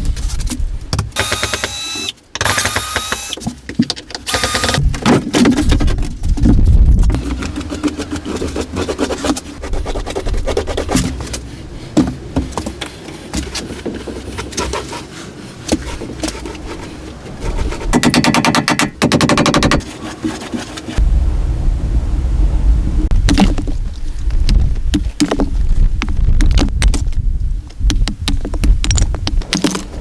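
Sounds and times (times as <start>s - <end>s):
power tool rattling: 4.3s - 4.8s
knocks and clicks: 17.9s - 19.9s, 23.2s - 27.2s.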